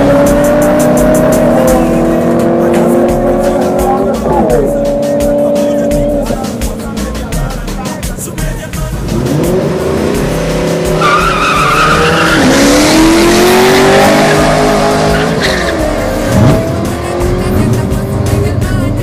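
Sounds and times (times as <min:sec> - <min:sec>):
racing engine accelerating: 0:00.0 - 0:07.0, 0:08.9 - 0:19.0
tire squeal: 0:10.8 - 0:16.3.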